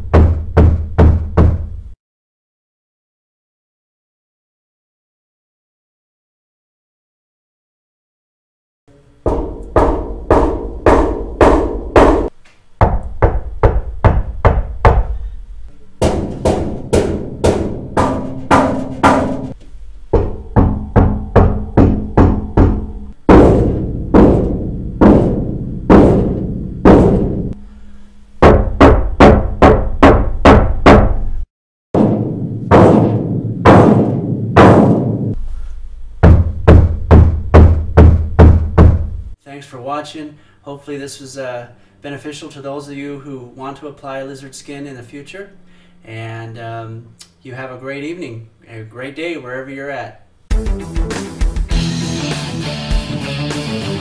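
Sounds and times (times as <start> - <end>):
knocking on sheet metal panels: 0.0 - 1.7, 9.3 - 15.2, 16.0 - 27.6, 28.4 - 31.2, 32.0 - 35.4, 36.2 - 39.2.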